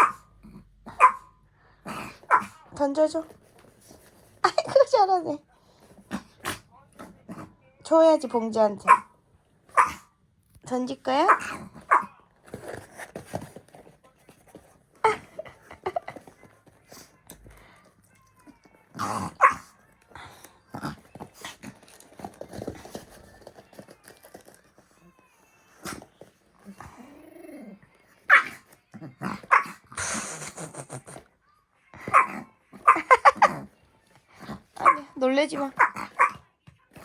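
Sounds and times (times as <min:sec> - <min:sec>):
dog barking: 0:00.0 - 0:00.3, 0:00.9 - 0:01.4, 0:02.3 - 0:02.6, 0:08.8 - 0:09.1, 0:09.7 - 0:10.1, 0:11.2 - 0:12.1, 0:19.4 - 0:19.7, 0:28.3 - 0:28.6, 0:29.5 - 0:29.8, 0:32.0 - 0:33.4, 0:34.8 - 0:36.4.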